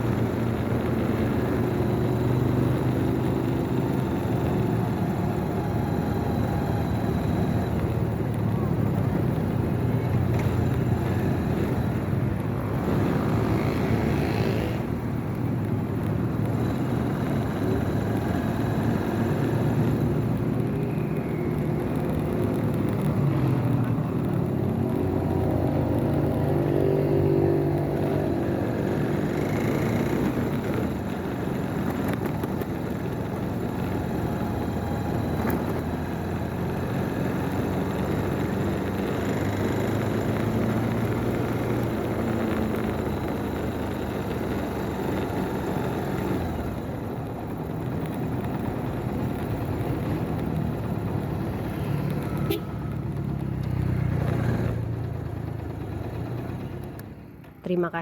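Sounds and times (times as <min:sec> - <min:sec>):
motorcycle engine: 0:00.0 - 0:58.0
wind and road noise: 0:00.0 - 0:58.0.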